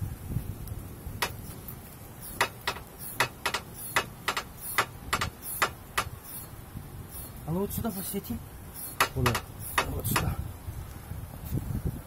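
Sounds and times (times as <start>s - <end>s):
suspension clicking knocks: 1.2s - 1.6s, 2.3s - 6.2s, 8.9s - 10.4s.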